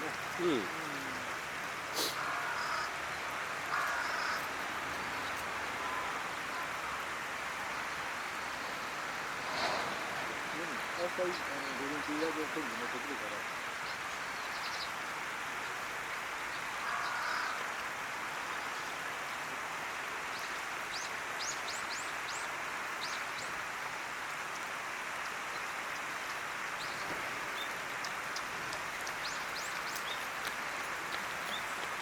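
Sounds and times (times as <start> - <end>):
birds chirping: 0.0 - 15.0, 26.7 - 32.0
steady rushing noise: 7.3 - 12.1.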